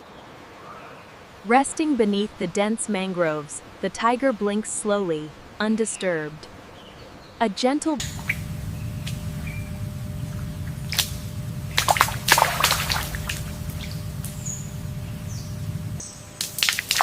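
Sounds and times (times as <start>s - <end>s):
steady low rumble: 8.0s - 17.0s
water splashes and drips: 10.0s - 14.4s, 16.4s - 17.0s.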